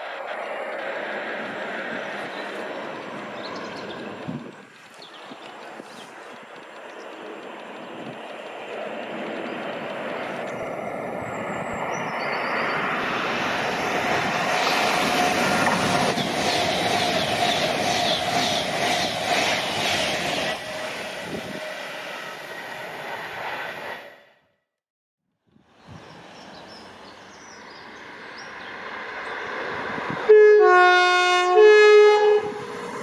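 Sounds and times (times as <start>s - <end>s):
train passing: 0.0s - 24.5s, 25.7s - 33.0s
train wheel clicks: 4.0s - 10.8s.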